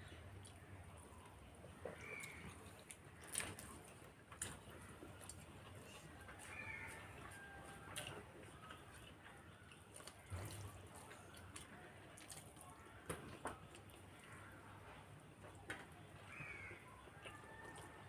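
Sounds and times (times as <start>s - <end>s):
eating clicks and smacks: 1.2s - 14.3s.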